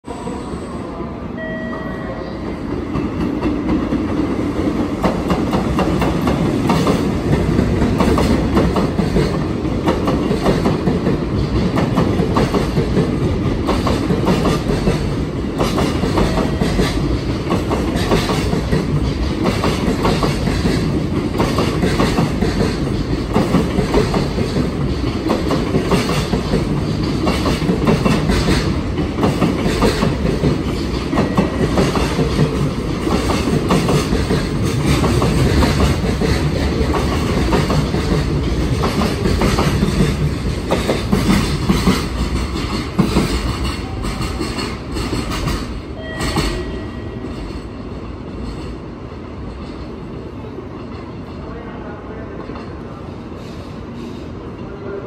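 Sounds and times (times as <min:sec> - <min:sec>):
train wheels clattering over rail joints: 0:02.9 - 0:46.5.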